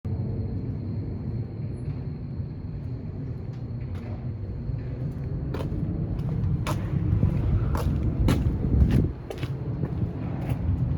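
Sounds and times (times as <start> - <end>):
truck engine rumbling: 2.9 - 10.8.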